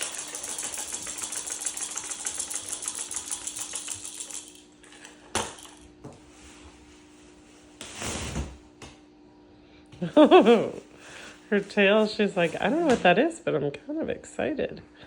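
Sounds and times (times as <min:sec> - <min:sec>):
hand-held rattle shaken: 0:00.0 - 0:05.8.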